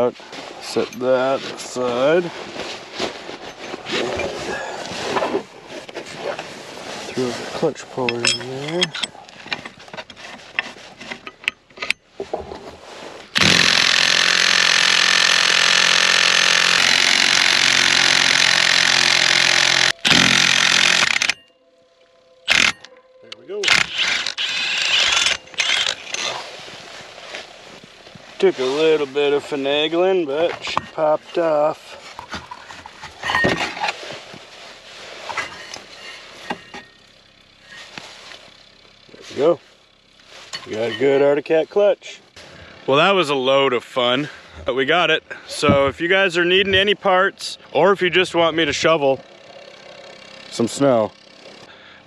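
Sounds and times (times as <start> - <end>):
metal tools knocking and clinking: 8.0 - 10.1, 33.2 - 33.9, 40.6 - 41.2
cordless impact wrench running: 13.3 - 21.5, 22.4 - 23.0, 23.6 - 26.4, 47.6 - 52.0.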